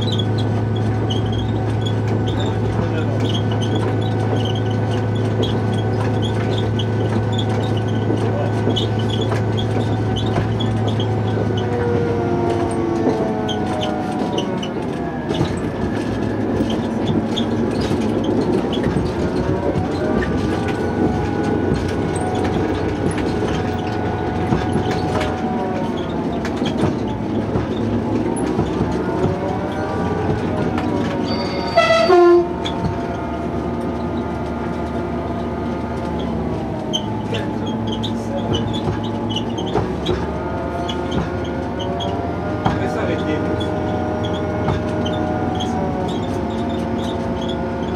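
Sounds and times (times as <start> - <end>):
train rumbling along track: 0.0 - 47.9
train horn blast: 31.3 - 32.6.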